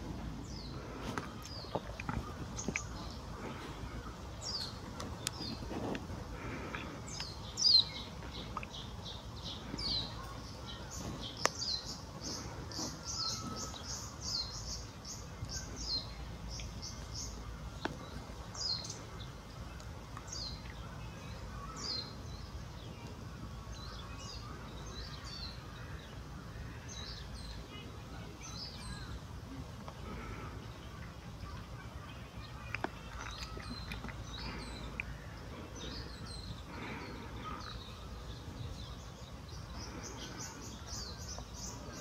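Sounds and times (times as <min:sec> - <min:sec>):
low background noise: 0:00.0 - 0:42.0
small bird chirping: 0:00.4 - 0:19.1.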